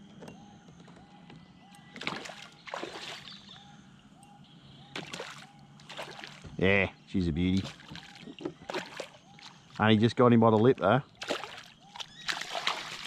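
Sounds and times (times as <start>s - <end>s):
water splashing: 2.0s - 3.5s, 5.0s - 6.6s, 7.4s - 13.0s.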